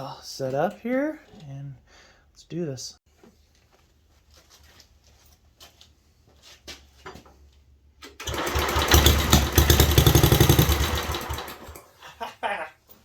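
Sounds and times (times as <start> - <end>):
small engine running: 8.2 - 11.8.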